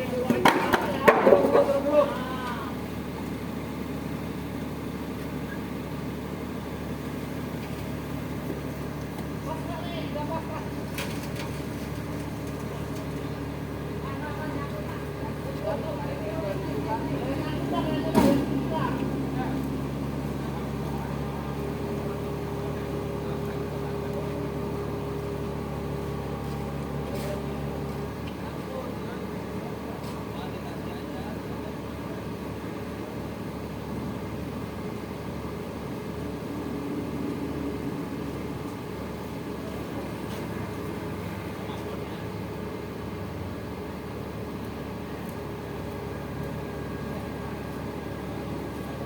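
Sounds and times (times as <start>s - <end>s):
truck engine idling: 0.0s - 49.0s.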